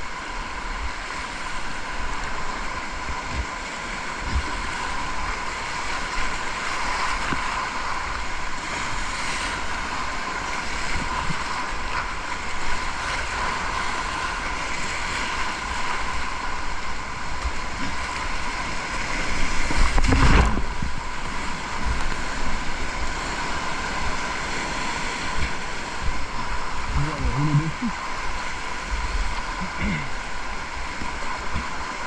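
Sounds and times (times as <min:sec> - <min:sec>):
whitewater rushing: 0:00.0 - 0:32.0
wind buffeting microphone: 0:18.9 - 0:29.7.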